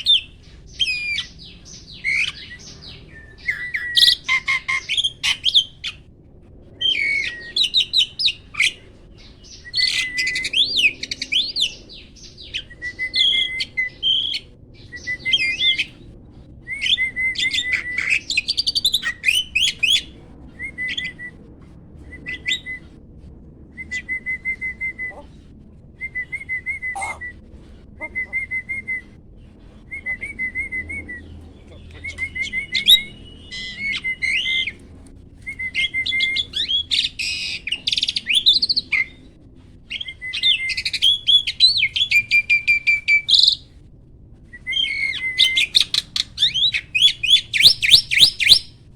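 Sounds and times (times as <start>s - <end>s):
starling whistles and glides: 6.8s - 23.0s, 23.6s - 43.6s.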